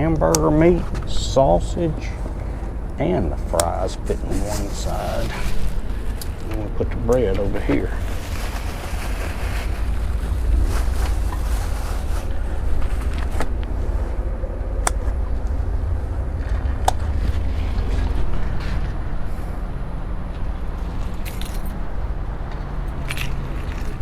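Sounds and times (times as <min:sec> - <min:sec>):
wind rumbling on microphone: 0:00.0 - 0:24.0
scraping rustles of groceries: 0:00.6 - 0:14.3.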